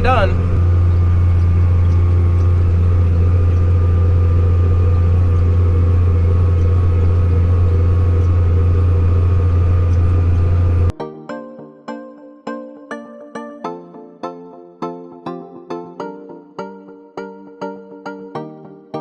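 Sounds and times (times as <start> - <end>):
tractor engine droning: 0.0 - 10.9.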